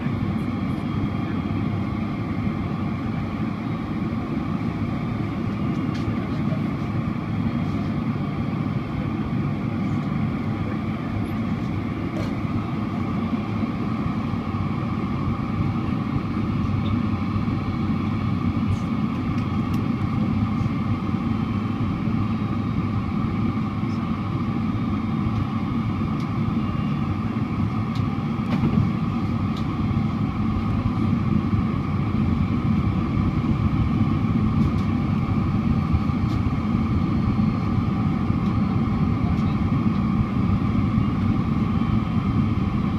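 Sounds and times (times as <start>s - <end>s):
airliner cabin drone: 0.0s - 42.9s.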